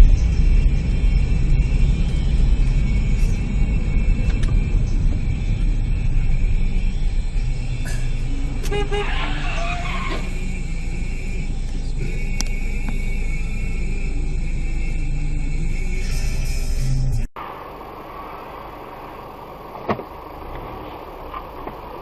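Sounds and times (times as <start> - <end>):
car engine rumble: 0.0 - 22.0
road noise: 0.0 - 22.0
car horn toots: 7.5 - 10.5.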